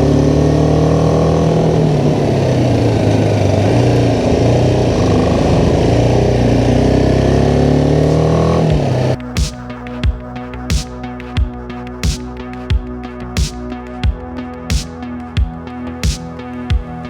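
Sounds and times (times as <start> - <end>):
motorcycle engine pulling uphill: 0.0 - 11.6.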